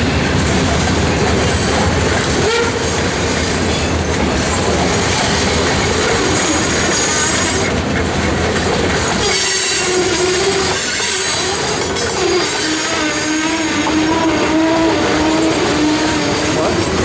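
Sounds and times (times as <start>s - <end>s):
freight train rumble and clatter: 0.0s - 17.0s
train wheels squealing on rails: 1.3s - 17.0s.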